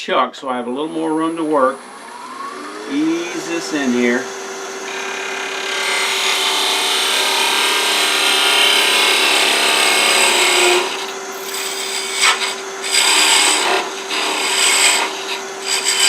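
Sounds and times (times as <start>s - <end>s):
lathe humming: 0.7s - 16.0s
tool scraping wood on lathe: 2.9s - 16.0s.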